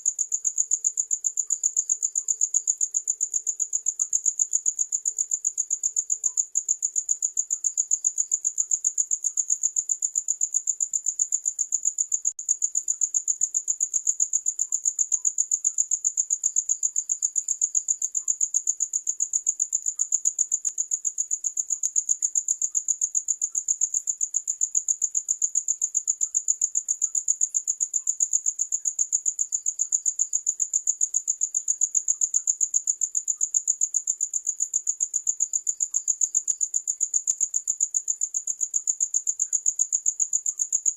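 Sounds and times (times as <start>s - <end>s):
cricket chirping: 0.0s - 40.9s.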